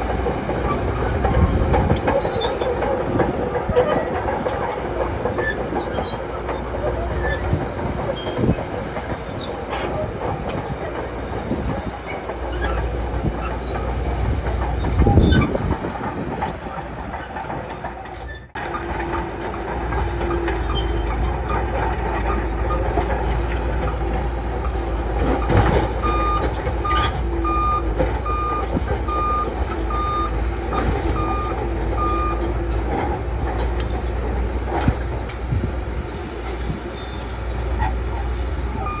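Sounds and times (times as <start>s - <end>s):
bulldozer diesel engine: 0.0s - 39.0s
steel tracks clanking and squealing: 0.0s - 39.0s
reversing alarm beeping: 26.0s - 32.5s.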